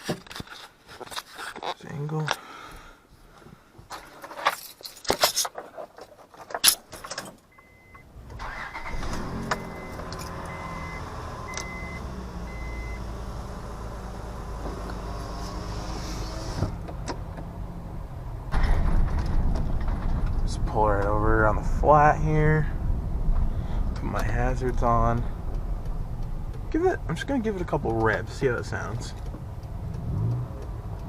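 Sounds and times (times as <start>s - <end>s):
keys jingling: 4.3s - 5.6s
car engine starting and idling: 7.6s - 31.0s
dashboard chime beeping: 9.6s - 13.0s
interior clicks and knocks: 23.3s - 31.0s.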